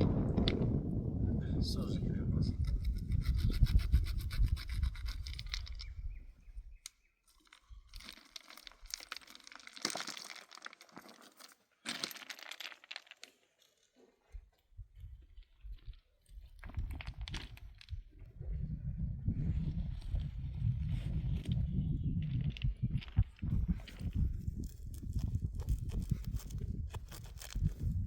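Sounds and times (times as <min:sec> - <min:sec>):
low rumble: 0:00.0 - 0:04.2
rustling and scraping: 0:22.5 - 0:28.0.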